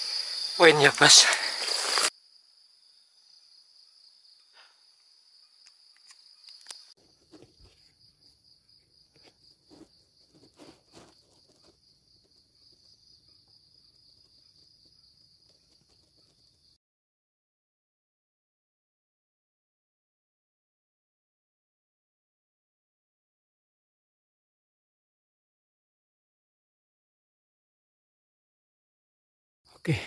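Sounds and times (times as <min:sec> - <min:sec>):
insects chirring: 0:00.0 - 0:16.8.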